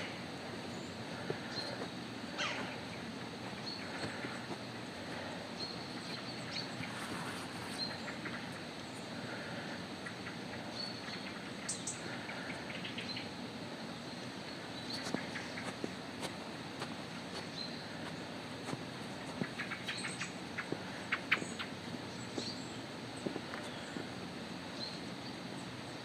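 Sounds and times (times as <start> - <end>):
steady background hiss: 0.0 - 26.0
light crunches or rustles: 6.8 - 8.0.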